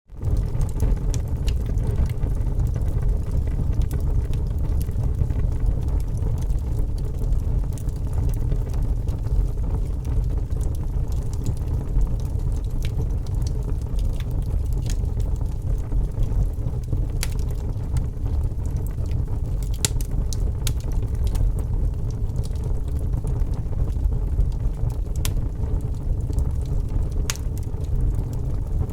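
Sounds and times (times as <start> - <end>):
low rumble: 0.1 - 28.9
wood fire crackling: 0.1 - 28.9.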